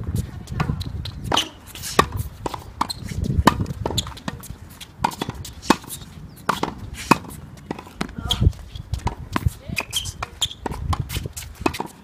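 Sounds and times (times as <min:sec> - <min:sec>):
tennis balls bouncing on court: 0:00.1 - 0:12.0
tennis balls struck with rackets: 0:00.5 - 0:12.0.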